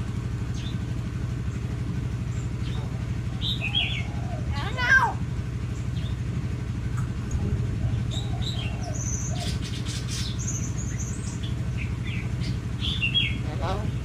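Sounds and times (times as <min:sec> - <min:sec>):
steady low hum: 0:00.0 - 0:14.0
myna chirping: 0:02.3 - 0:04.7, 0:07.8 - 0:14.0.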